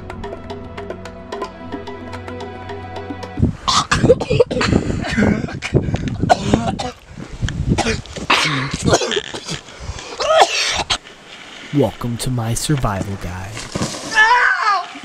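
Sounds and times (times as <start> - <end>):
man clearing his throat: 3.7 - 7.0, 7.8 - 9.6
man coughing: 3.7 - 7.0, 7.8 - 9.6, 10.2 - 11.0.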